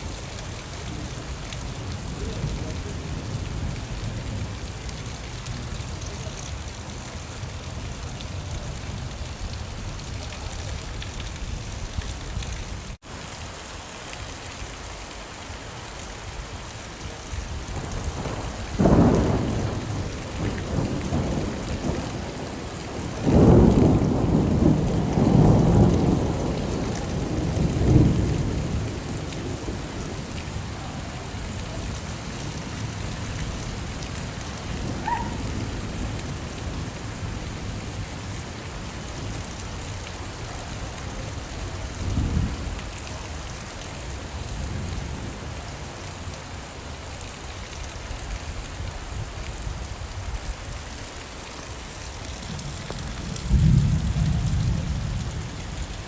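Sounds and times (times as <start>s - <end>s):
steady rain falling: 0.0s - 56.0s
thunder rumbling: 17.5s - 38.3s, 52.3s - 56.0s.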